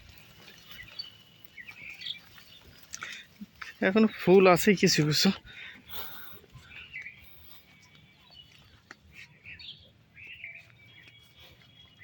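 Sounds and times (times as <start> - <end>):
faint bird chirps: 6.0 - 12.0.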